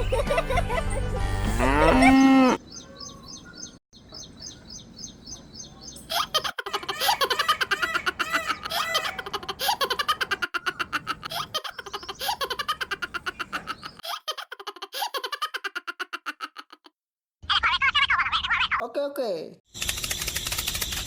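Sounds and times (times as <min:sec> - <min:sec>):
baby giggling: 0:06.0 - 0:16.9.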